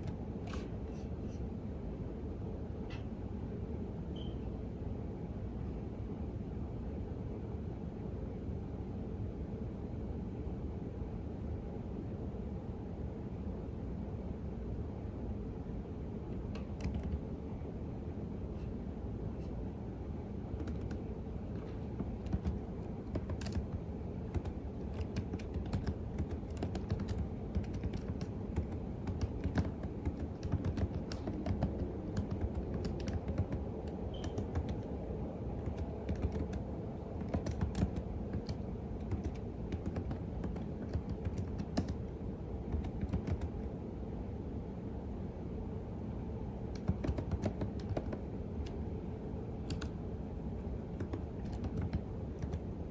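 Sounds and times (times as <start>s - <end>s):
low background noise: 0.0s - 52.9s
computer keyboard typing: 16.4s - 17.2s, 20.5s - 35.0s, 35.6s - 42.1s, 42.7s - 43.7s, 46.7s - 48.8s, 49.6s - 50.0s, 50.9s - 52.7s.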